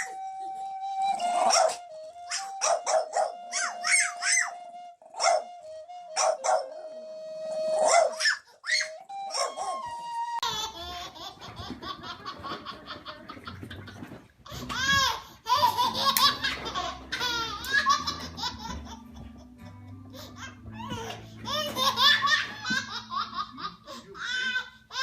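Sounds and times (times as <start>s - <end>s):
baby laughing: 1.4s - 4.5s, 7.8s - 9.8s, 10.4s - 19.5s, 20.2s - 25.0s.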